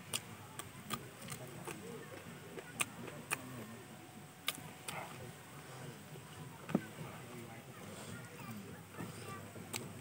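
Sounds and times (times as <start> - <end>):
person chewing fried chicken: 0.0 - 3.6
wet mouth clicks and lip smacks: 4.4 - 5.1.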